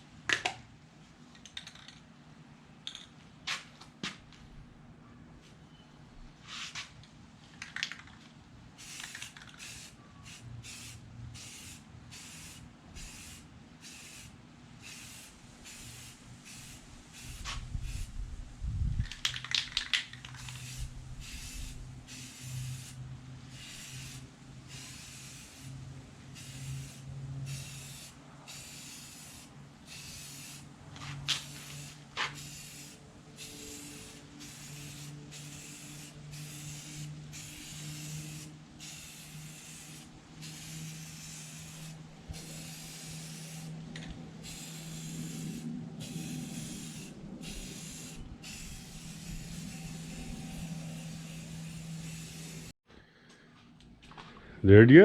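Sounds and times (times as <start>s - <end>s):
spray paint hissing bursts: 8.8s - 18.2s, 19.1s - 43.8s, 44.4s - 52.8s.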